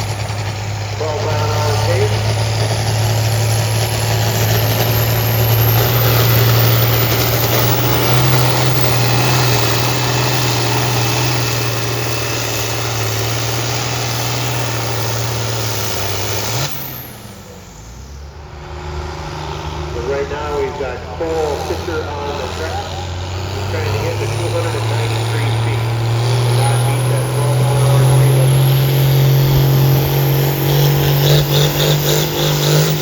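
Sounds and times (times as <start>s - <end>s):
tractor engine running under load: 0.0s - 33.0s.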